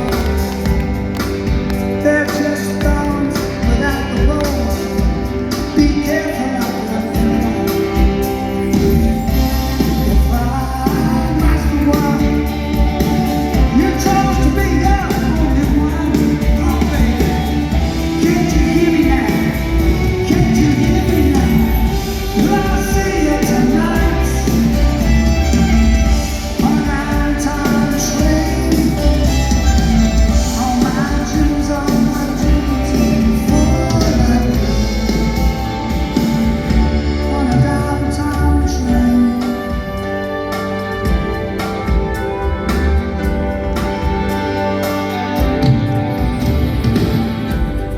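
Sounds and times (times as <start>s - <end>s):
live rock band: 0.0s - 47.9s
person singing: 0.0s - 47.9s
heavy bass line: 6.1s - 39.3s.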